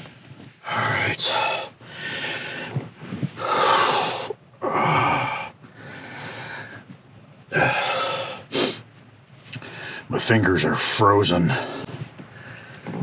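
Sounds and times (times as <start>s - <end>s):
man breathing hard: 1.2s - 6.9s, 7.5s - 8.9s, 9.5s - 10.1s, 11.5s - 13.0s.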